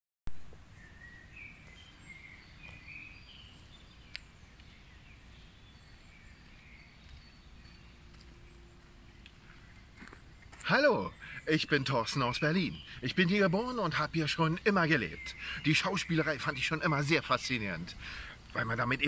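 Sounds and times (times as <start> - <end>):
birds singing and chirping: 0.6 - 19.0.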